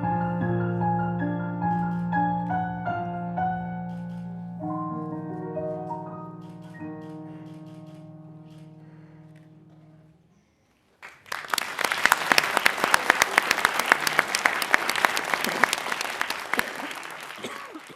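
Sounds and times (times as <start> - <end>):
audience applause: 10.9 - 17.9.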